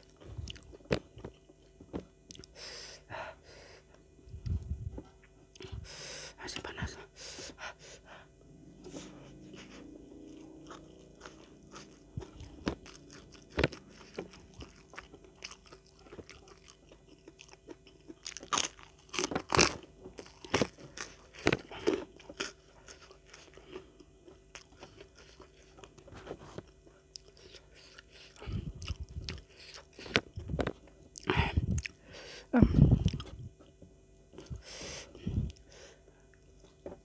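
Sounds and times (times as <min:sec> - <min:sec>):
wet chewing: 0:10.2 - 0:32.0
crunching raw vegetables: 0:10.6 - 0:32.0.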